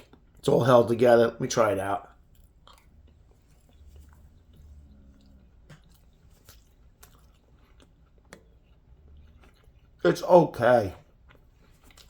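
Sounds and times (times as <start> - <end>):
faint chewing: 0.0 - 0.5, 2.0 - 12.0
soft mouth noises: 2.0 - 10.0.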